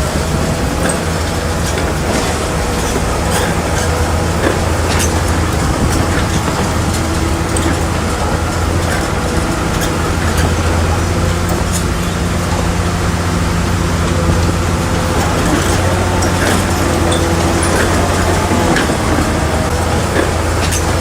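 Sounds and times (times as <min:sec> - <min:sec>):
bulldozer diesel engine droning: 0:00.0 - 0:21.0.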